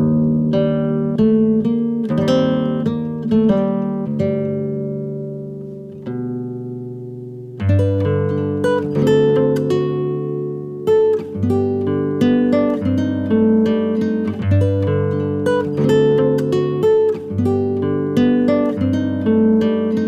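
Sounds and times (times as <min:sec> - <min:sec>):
acoustic guitar music: 0:00.0 - 0:20.0.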